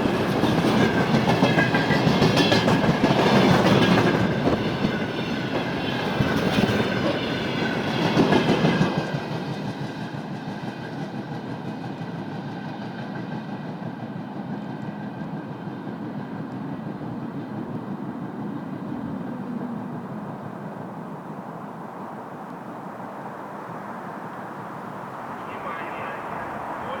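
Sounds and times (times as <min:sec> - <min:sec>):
freight train wheels clicking: 0:00.0 - 0:19.6.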